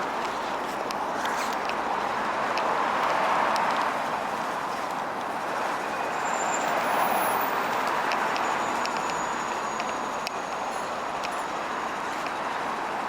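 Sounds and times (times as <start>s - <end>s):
bus rushing noise: 0.0s - 13.0s
faint ticks: 11.2s - 12.4s.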